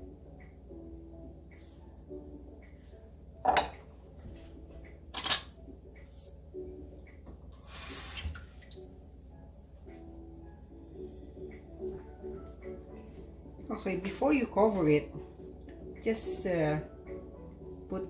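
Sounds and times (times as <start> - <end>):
quiet background music: 0.0 - 18.0
utensils and pans clattering: 5.1 - 5.5.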